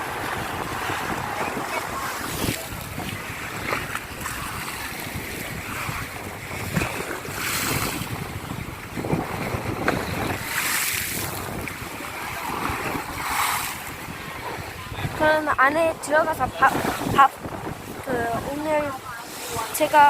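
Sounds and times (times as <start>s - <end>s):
waves breaking on shore: 0.0s - 20.0s
wind buffeting microphone: 0.0s - 20.0s.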